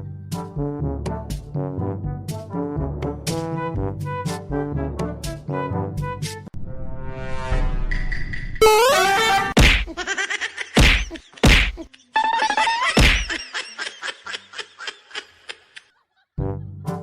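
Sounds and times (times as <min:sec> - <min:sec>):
music: 0:00.0 - 0:09.6, 0:12.2 - 0:13.2, 0:16.4 - 0:17.0
loud whacks: 0:09.6 - 0:10.0, 0:10.8 - 0:11.8, 0:13.0 - 0:13.4.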